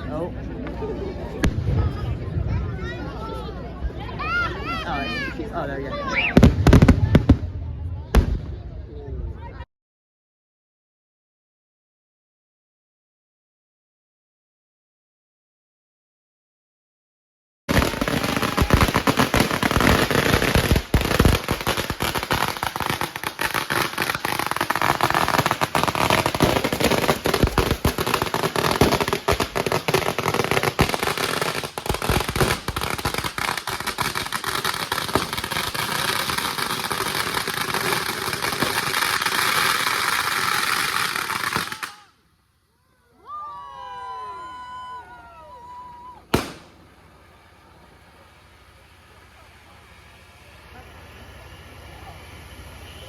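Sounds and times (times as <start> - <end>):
fireworks crackling and banging: 0.5 - 8.8, 17.7 - 42.2, 45.6 - 53.0.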